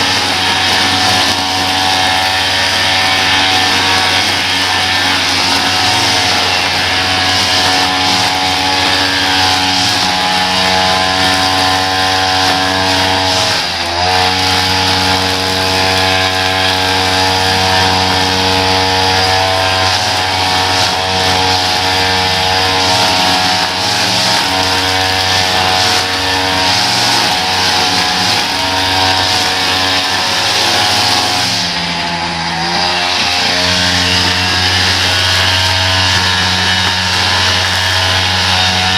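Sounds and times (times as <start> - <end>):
small petrol engine running: 0.0 - 38.9.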